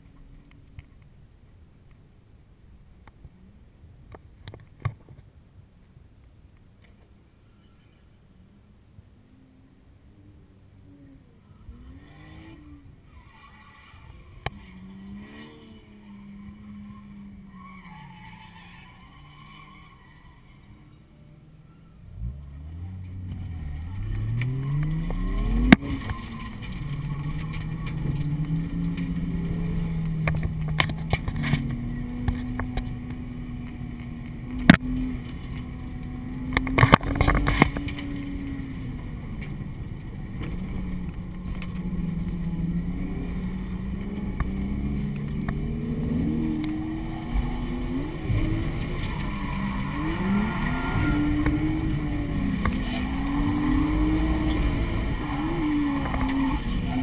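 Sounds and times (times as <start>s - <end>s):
car engine revving hard: 40.5s - 57.0s.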